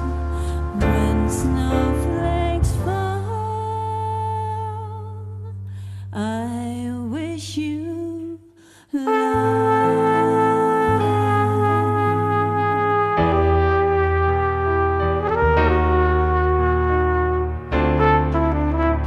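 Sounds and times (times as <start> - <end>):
jazz band playing: 0.0 - 3.2, 9.3 - 19.0.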